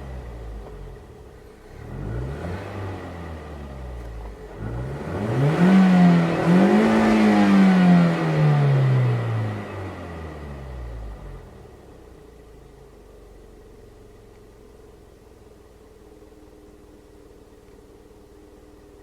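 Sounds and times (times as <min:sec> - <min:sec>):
car engine revving: 0:00.0 - 0:12.1.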